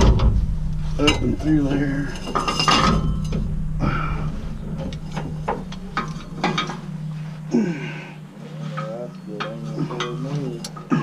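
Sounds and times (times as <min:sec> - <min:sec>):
metal clinks and knocks: 0:00.0 - 0:07.5
steady low hum: 0:00.0 - 0:11.0.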